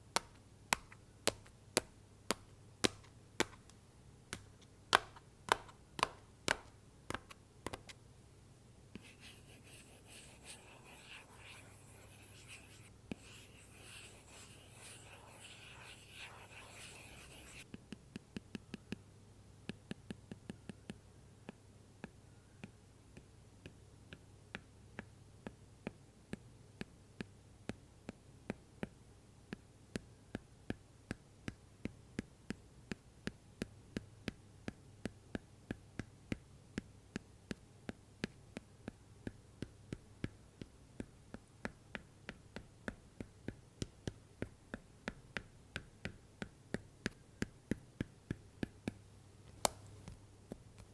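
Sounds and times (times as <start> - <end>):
stylus tapping on tablet cover: 0.1 - 7.9, 49.5 - 50.9.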